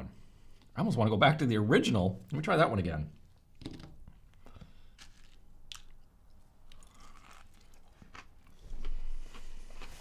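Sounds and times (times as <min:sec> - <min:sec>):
crunching and chewing: 0:04.3 - 0:10.0.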